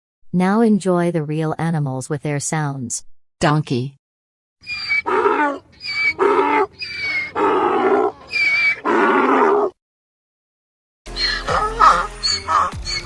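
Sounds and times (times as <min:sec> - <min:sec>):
donkey braying: 0:04.6 - 0:09.7, 0:11.2 - 0:13.0.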